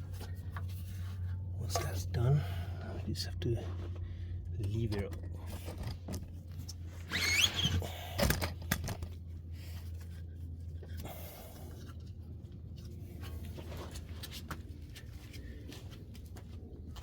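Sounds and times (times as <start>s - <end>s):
steady low hum: 0.0s - 17.0s
squeaky scrape of pry bar: 7.0s - 7.9s.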